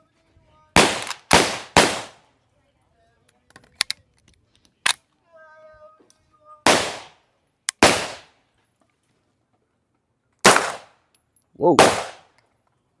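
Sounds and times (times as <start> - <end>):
loud gunshots: 0.8 - 2.2, 6.7 - 7.2, 7.8 - 8.3, 10.4 - 10.9, 11.8 - 12.3.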